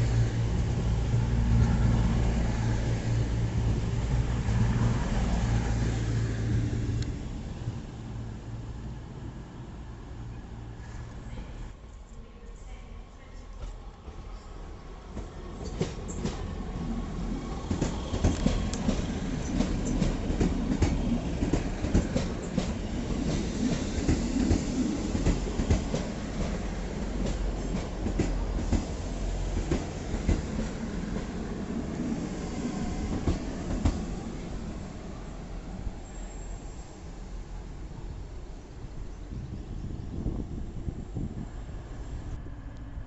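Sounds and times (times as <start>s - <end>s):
train rumbling past: 0.0s - 43.0s.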